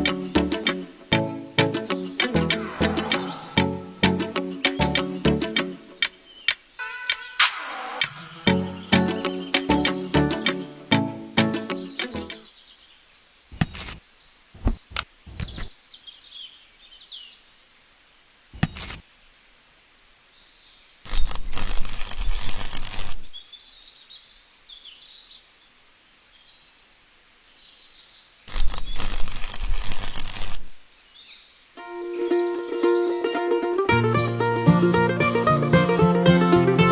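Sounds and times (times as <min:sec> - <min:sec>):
birds chirping: 0:00.0 - 0:17.8
sharp clicks: 0:11.9 - 0:12.4.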